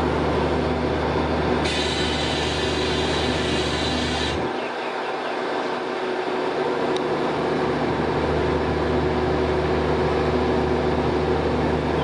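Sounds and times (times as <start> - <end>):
train coaches rolling on rails: 0.0 - 9.1
deep drone: 6.1 - 12.0.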